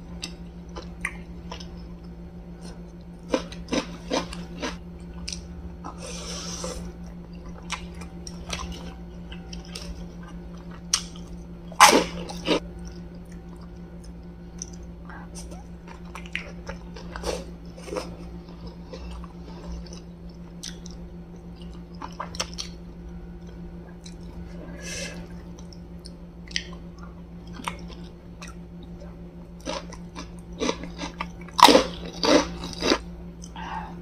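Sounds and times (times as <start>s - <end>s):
steady low hum: 0.0s - 34.0s
person chewing and biting: 0.2s - 22.8s, 25.2s - 33.6s
cracker crunching: 25.4s - 33.6s.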